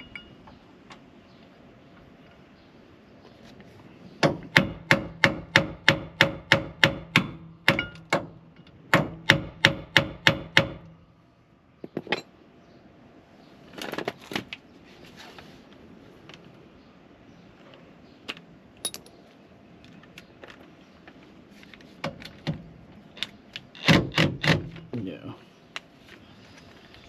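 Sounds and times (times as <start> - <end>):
light metal clinks: 18.8 - 19.2.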